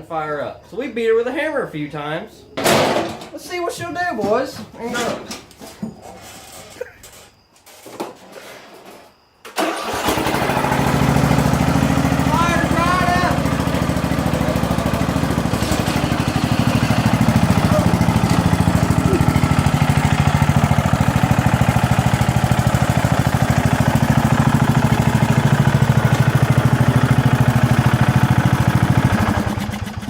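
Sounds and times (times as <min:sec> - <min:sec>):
lawn mower engine running: 0:09.6 - 0:30.0.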